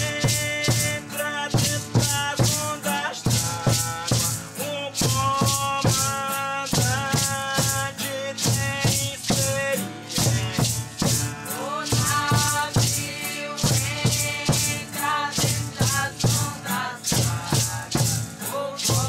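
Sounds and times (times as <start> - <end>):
shaken rattles: 0.0 - 19.0
person chanting held notes: 11.4 - 19.0.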